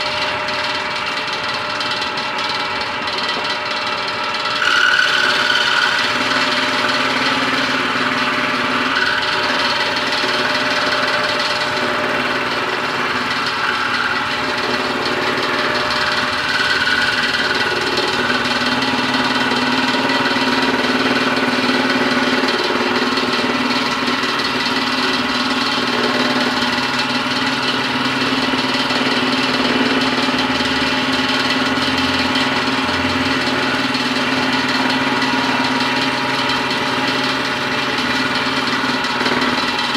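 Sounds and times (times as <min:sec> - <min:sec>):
scroll saw motor running: 0:00.0 - 0:39.9.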